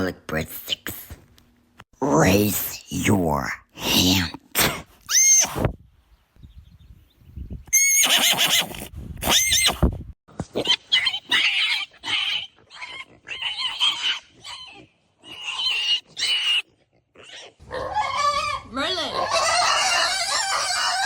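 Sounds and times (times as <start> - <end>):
animal calls wavering: 17.6 - 21.0.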